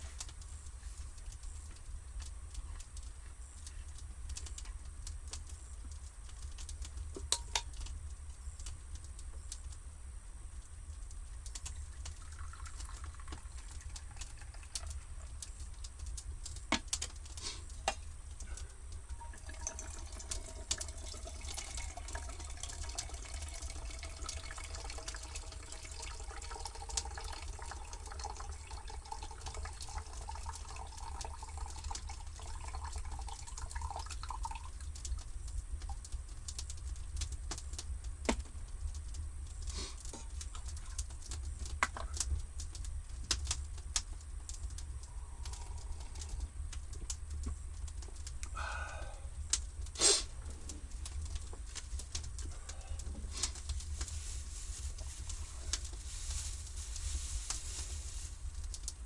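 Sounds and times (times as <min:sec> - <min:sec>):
water pouring into a container: 0:11.6 - 0:15.7, 0:19.2 - 0:35.2
steady low rumble: 0:40.2 - 0:59.0.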